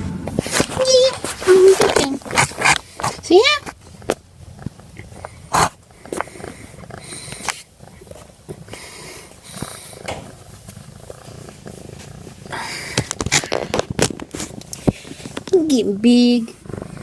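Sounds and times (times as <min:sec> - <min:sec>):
cat purring: 0:00.1 - 0:17.0
handling rustles: 0:00.3 - 0:04.9, 0:09.6 - 0:15.7.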